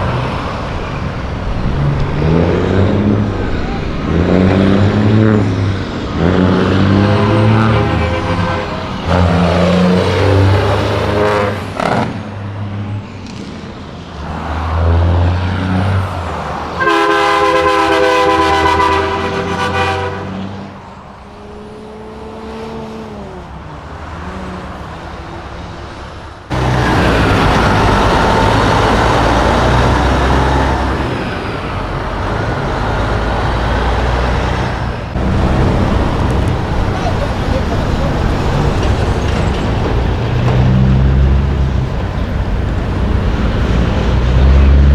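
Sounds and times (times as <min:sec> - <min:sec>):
diesel truck engines running: 0:00.0 - 0:44.9
truck passing close: 0:00.0 - 0:44.9
air horn blast: 0:06.2 - 0:11.8, 0:16.8 - 0:20.7, 0:35.2 - 0:38.7.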